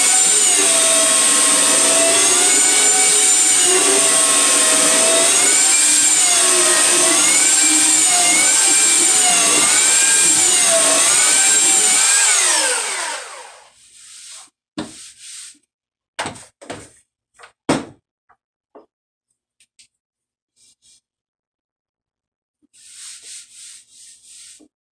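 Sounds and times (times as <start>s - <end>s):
electric sander running: 0.0s - 13.7s.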